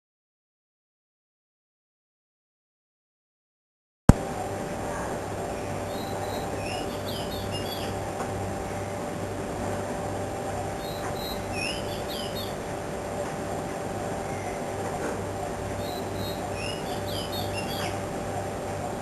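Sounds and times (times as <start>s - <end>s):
mechanical hum with throb: 4.1s - 19.0s
birds chirping: 5.4s - 9.1s, 10.4s - 19.0s.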